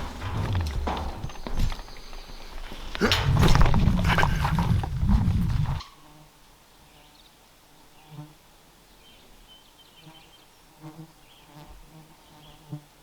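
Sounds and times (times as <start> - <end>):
soft thuds: 0.0 - 5.8
wind buffeting microphone: 0.0 - 5.9.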